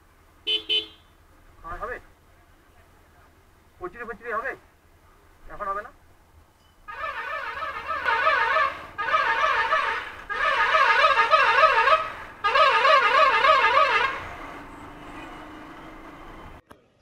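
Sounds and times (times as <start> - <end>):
warbling horn blasts: 6.9 - 15.6.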